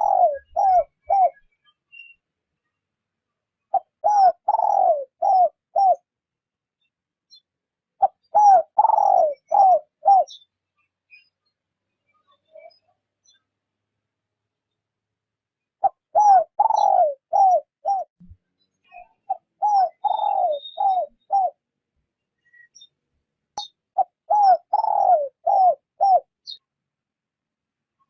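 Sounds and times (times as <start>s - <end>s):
dove cooing: 0.0s - 1.4s, 3.7s - 6.0s, 8.0s - 10.4s, 15.8s - 18.1s, 19.3s - 21.6s, 24.0s - 26.6s
small birds chirping: 0.0s - 26.8s.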